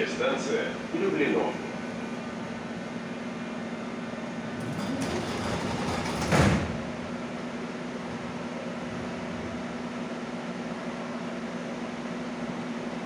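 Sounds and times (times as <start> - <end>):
train car hum: 0.0 - 13.0
sliding doors closing with bang: 4.5 - 7.4.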